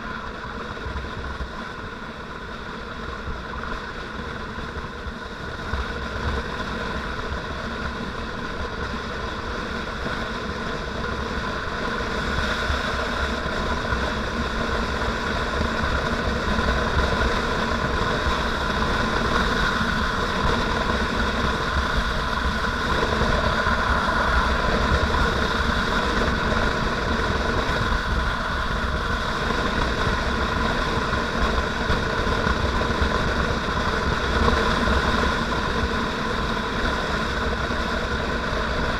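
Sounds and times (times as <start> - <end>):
motorcycle engine running: 0.0 - 38.9
low rumble: 13.8 - 38.9.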